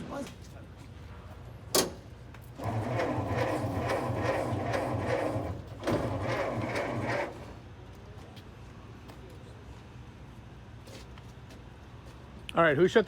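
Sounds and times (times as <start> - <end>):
starter cranking engine: 2.6 - 7.6.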